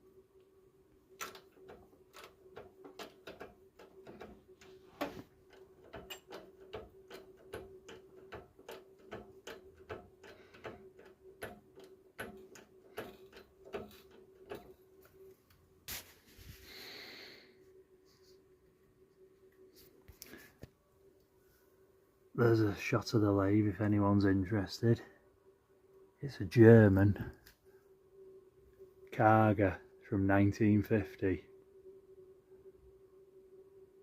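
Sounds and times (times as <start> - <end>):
workshop machine humming: 0.0 - 15.9.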